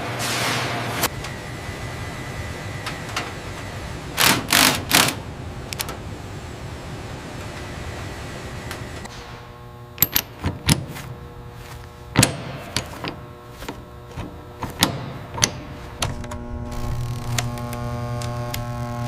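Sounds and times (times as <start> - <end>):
electric machine hum: 0.8 - 19.0
sharp metallic clicks and knocks: 12.2 - 16.4.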